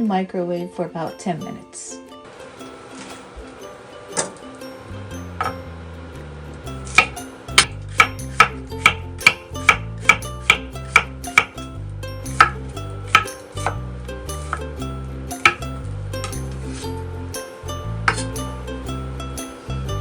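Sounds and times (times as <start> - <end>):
background music with bass: 1.9 - 20.0
knife chopping on cutting board: 6.9 - 11.6, 12.3 - 13.8, 15.4 - 15.6.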